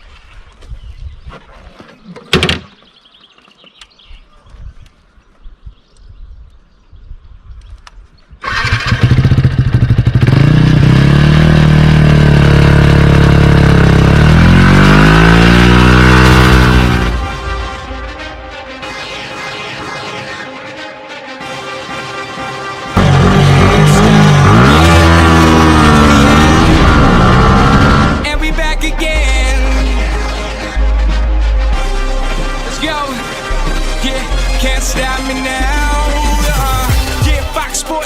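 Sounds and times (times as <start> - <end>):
motorcycle engine idling and revving: 8.4 - 17.4, 23.0 - 28.7.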